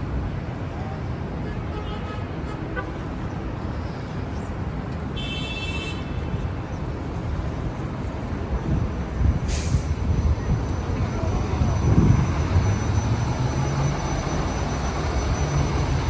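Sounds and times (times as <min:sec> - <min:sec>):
street traffic rumble: 0:00.0 - 0:16.0
short hiss: 0:09.5 - 0:10.0
high squeal: 0:09.5 - 0:16.0.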